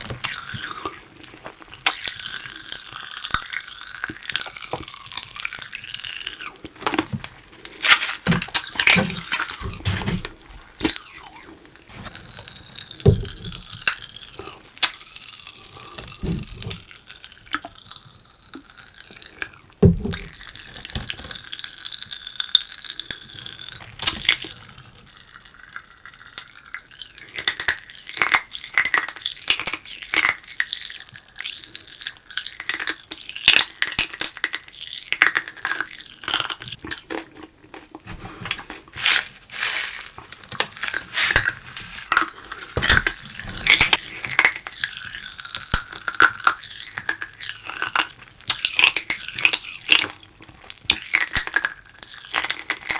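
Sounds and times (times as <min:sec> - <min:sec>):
dull thumps: 0:08.2 - 0:10.6, 0:13.0 - 0:13.7, 0:19.8 - 0:20.4, 0:42.7 - 0:44.2.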